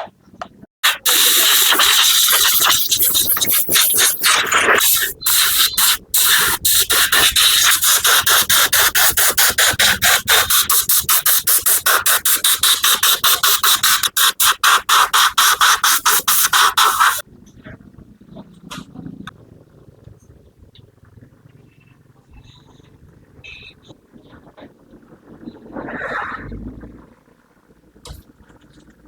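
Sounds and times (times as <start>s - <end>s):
pulsing hissing spray jet: 0.8s - 17.2s.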